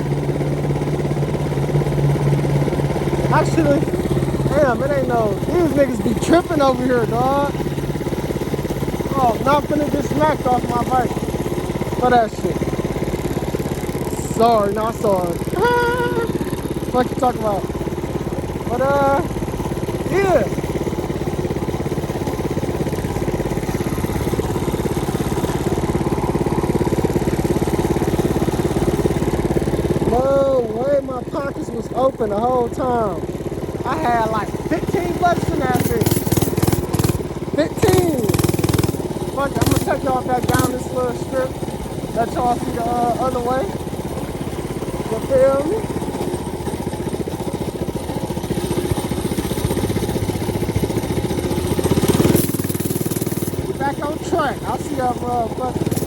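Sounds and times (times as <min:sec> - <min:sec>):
mini bike engine running: 0:00.0 - 0:56.0
small motorbike engine putter: 0:32.7 - 0:56.0.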